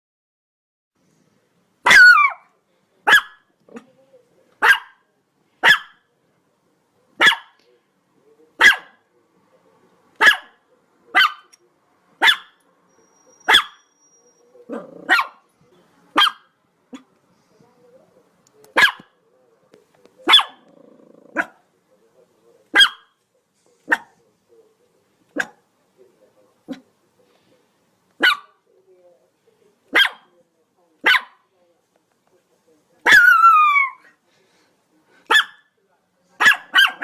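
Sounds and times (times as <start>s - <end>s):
dog barking: 1.8s - 3.9s, 4.6s - 5.0s, 5.6s - 6.1s, 7.2s - 7.6s, 8.6s - 9.0s, 10.2s - 11.6s, 12.2s - 12.6s, 13.4s - 13.9s, 14.7s - 15.5s, 16.1s - 17.1s, 18.7s - 19.2s, 20.2s - 20.7s, 21.3s - 21.7s, 22.7s - 23.2s, 23.9s - 24.2s, 25.3s - 25.6s, 28.2s - 28.6s, 29.9s - 30.3s, 31.0s - 31.5s, 33.0s - 34.0s, 35.3s - 35.7s, 36.4s - 37.0s.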